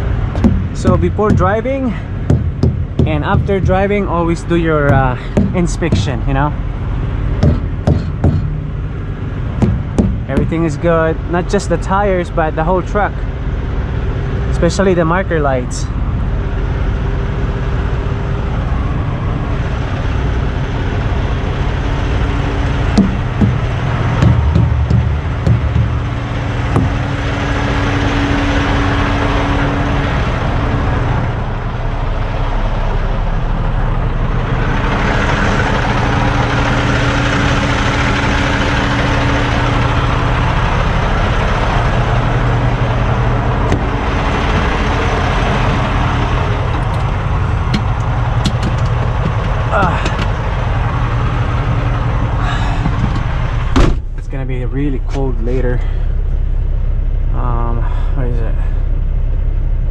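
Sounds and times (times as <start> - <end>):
diesel truck engines idling: 0.0 - 59.9
knocks: 0.4 - 1.7, 2.3 - 3.8, 4.9 - 6.2, 7.4 - 8.7, 9.6 - 10.6, 22.9 - 27.2, 47.7 - 50.3.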